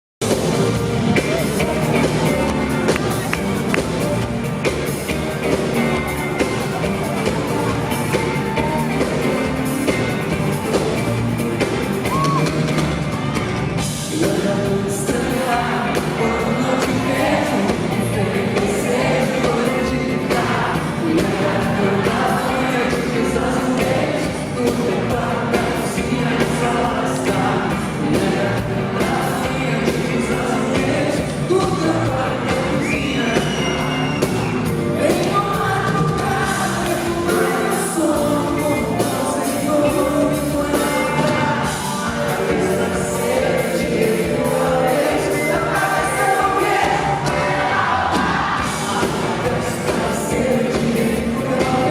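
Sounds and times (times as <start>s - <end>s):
live pop-rock band: 0.2s - 51.9s
person singing: 13.8s - 51.9s.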